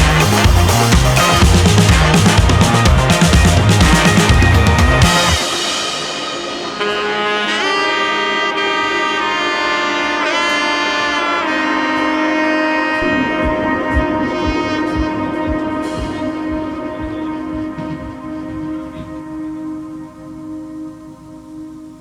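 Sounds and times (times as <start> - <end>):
low beat: 0.0 - 7.7, 13.0 - 20.3
melody of long held notes: 0.0 - 22.0.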